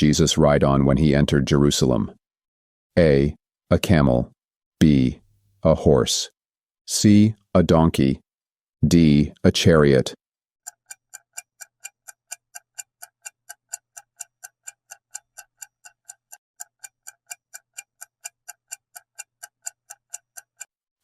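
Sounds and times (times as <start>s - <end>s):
clock ticking: 10.6s - 20.8s.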